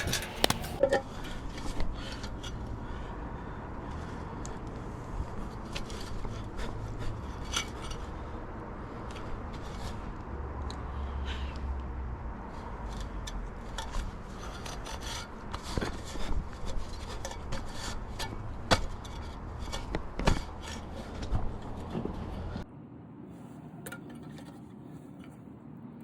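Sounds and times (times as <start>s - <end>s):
hand scrubbing metal parts: 0.0s - 2.7s, 3.9s - 10.2s, 12.6s - 22.6s.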